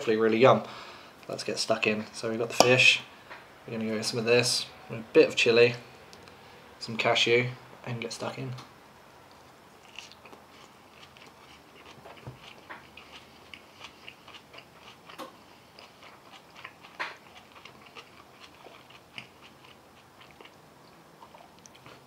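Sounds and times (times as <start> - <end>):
person chewing: 9.3 - 22.0.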